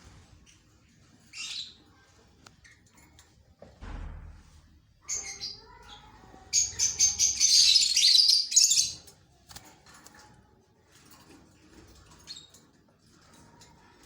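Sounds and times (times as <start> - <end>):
lovebirds chirping shrilly: 5.0 - 9.0.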